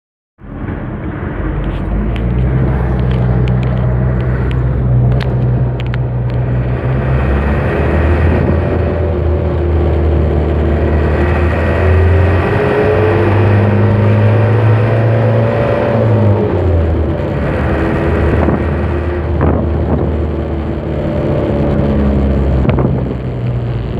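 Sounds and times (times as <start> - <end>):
truck engine running: 0.4 - 23.9.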